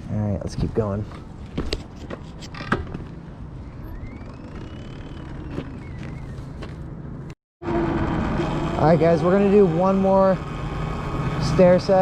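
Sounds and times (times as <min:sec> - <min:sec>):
electric motor whine: 0:03.9 - 0:06.3.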